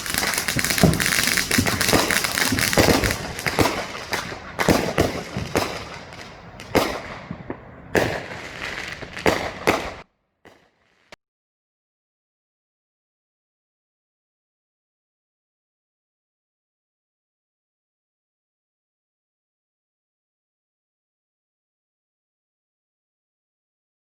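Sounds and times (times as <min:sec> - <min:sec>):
fireworks crackling and banging: 0:00.0 - 0:11.2.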